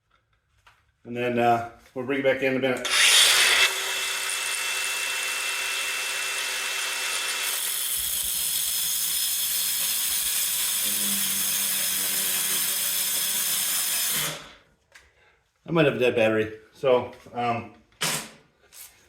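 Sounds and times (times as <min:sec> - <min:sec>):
power tool cutting steel pipe: 0:02.8 - 0:14.6.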